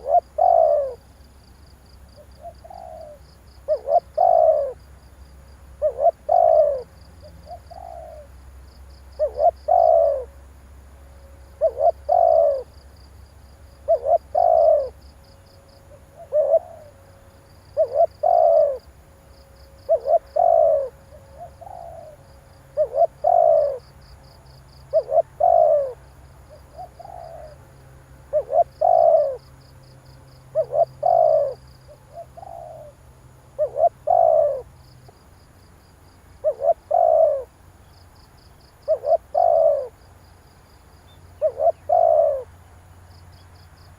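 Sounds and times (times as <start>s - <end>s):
dove cooing: 0.0s - 1.2s, 2.2s - 4.9s, 5.8s - 8.4s, 9.1s - 10.4s, 11.5s - 12.8s, 13.6s - 15.0s, 15.7s - 17.1s, 17.7s - 18.9s, 19.7s - 27.7s, 28.3s - 29.5s, 30.4s - 33.0s, 33.6s - 34.7s, 36.4s - 37.5s, 38.8s - 40.0s, 41.1s - 42.5s.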